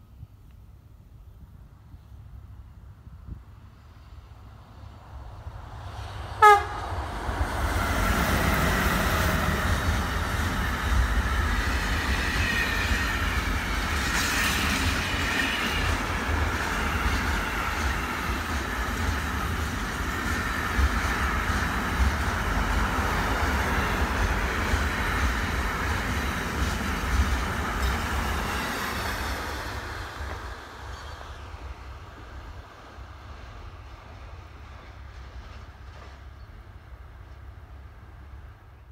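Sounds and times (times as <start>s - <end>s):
train running past: 1.6s - 38.9s
train horn blast: 6.4s - 7.0s.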